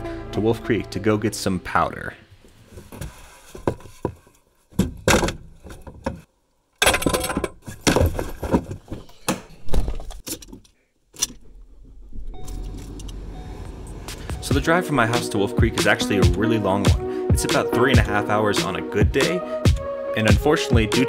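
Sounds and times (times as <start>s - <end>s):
low hum: 11.3s - 14.5s.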